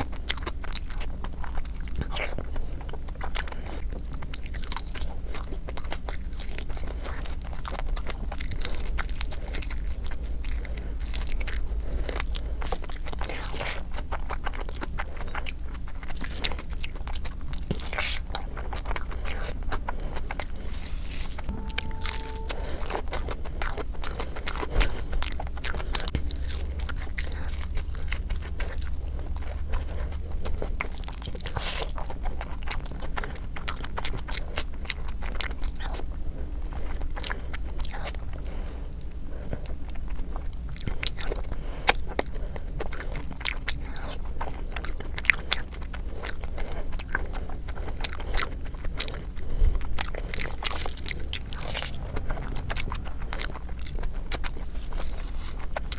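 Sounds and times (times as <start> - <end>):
person chewing food: 0.0 - 55.9
steady low hum: 0.0 - 55.9.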